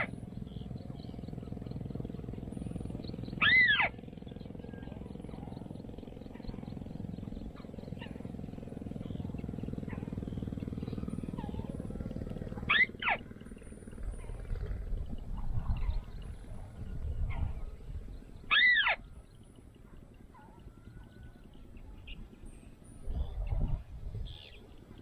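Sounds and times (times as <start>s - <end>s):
low rumble: 0.0s - 19.4s
faint bird chirps: 0.0s - 25.0s
loud arching bird call: 3.3s - 4.1s, 12.6s - 13.2s, 18.5s - 19.1s.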